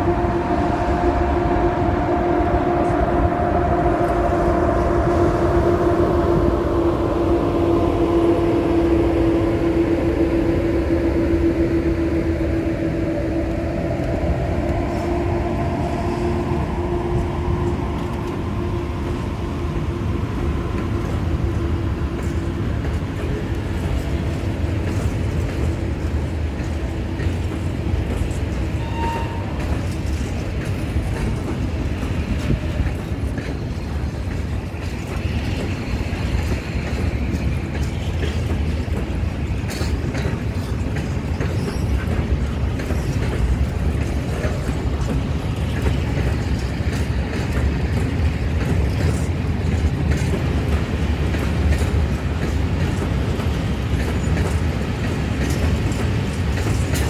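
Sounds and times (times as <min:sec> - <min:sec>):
wheels clacking over rail joints: 0:20.1 - 0:57.0.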